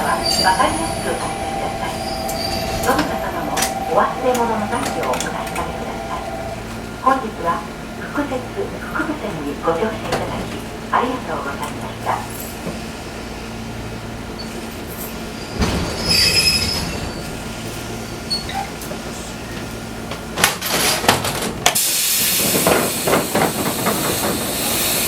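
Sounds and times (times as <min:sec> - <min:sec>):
high squeal: 0:00.0 - 0:06.6
train electrical hum: 0:00.0 - 0:25.0.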